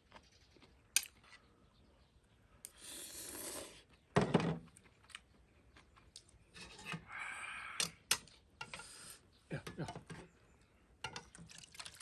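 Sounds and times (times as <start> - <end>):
noodle slurping: 2.8 - 3.8.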